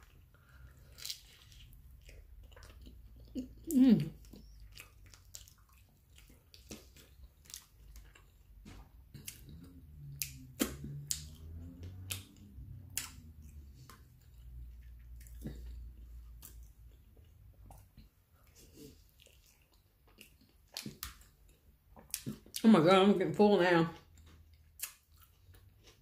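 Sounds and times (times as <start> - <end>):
wet chewing: 0.0 - 22.7, 24.0 - 26.0.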